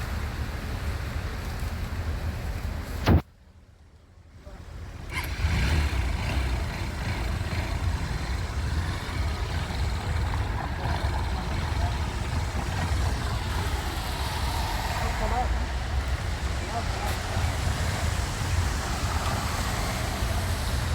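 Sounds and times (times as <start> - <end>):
rain: 0.0 - 3.2, 4.3 - 20.9
road traffic rumble: 0.0 - 20.9.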